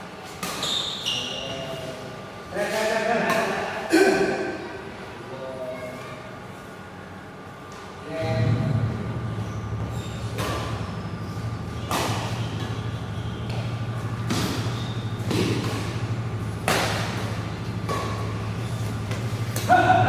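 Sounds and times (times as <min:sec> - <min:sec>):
steady low hum: 0:06.9 - 0:20.0
rackets hitting shuttlecock: 0:09.4 - 0:20.0.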